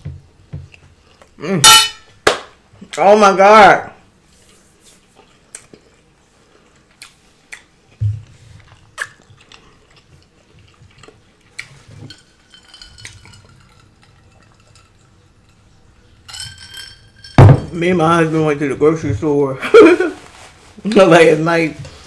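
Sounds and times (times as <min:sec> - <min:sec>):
person chewing: 0:04.7 - 0:15.3.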